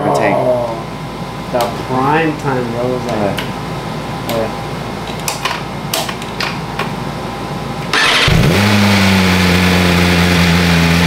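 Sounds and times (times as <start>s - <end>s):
motorcycle engine starting and idling: 7.9s - 11.0s.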